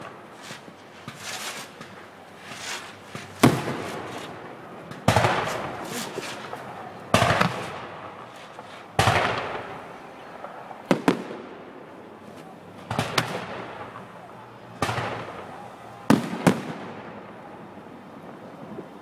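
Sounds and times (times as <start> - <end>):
firework shells bursting: 0.0 - 11.4.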